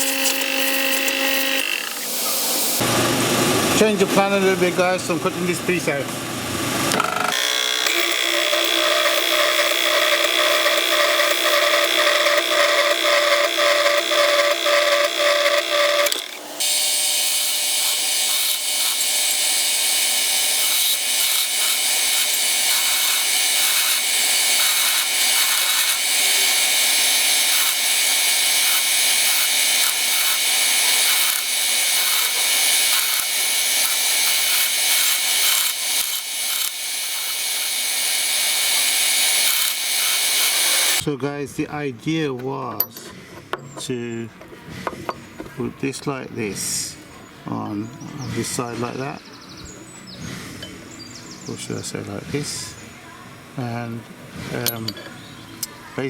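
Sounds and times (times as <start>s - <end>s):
saw cutting: 0.0s - 4.4s, 7.0s - 41.1s.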